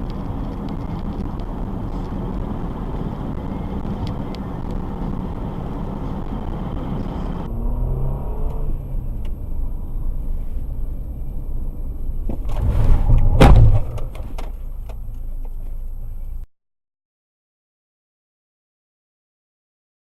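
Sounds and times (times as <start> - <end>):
car road and engine rumble: 0.0 - 16.5
loud collision bang: 12.2 - 14.6.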